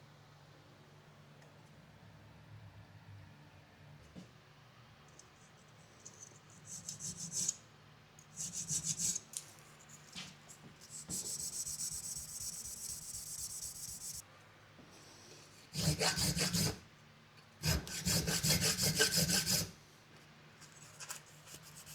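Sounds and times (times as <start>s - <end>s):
hand tool rasping on metal: 15.7s - 16.8s, 17.6s - 19.7s.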